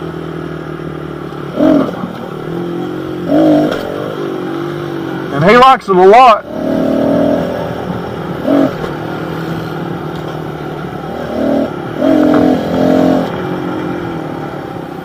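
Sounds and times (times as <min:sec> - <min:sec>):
small motorbike engine revving: 0:01.5 - 0:04.9, 0:06.4 - 0:07.8, 0:08.4 - 0:09.8, 0:11.0 - 0:13.5.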